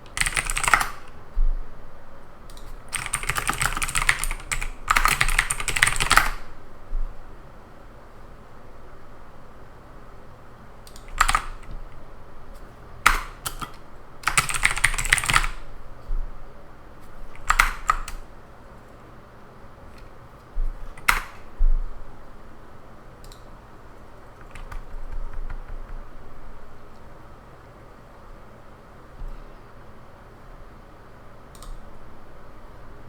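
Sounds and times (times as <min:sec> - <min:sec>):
keyboard key clicks: 0:24.4 - 0:26.1.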